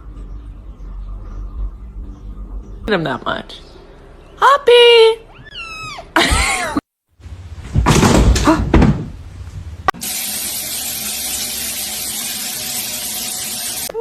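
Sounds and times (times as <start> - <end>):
rustling and knocking: 7.3 - 9.9.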